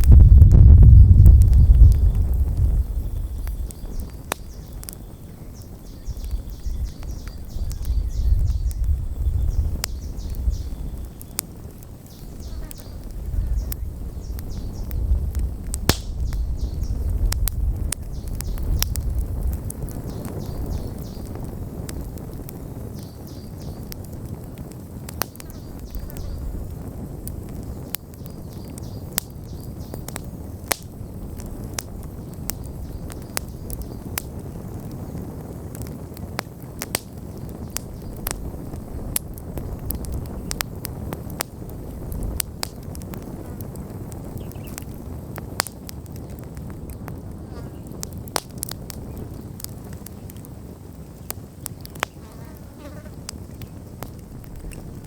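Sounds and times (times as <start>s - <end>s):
low wind rumble: 0.0s - 52.0s, 52.9s - 55.0s
campfire crackling and popping: 0.0s - 55.0s.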